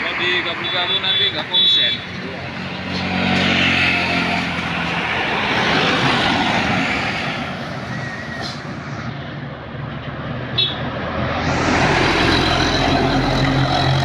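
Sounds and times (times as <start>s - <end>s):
heavy vehicle passing by: 10.1s - 14.0s.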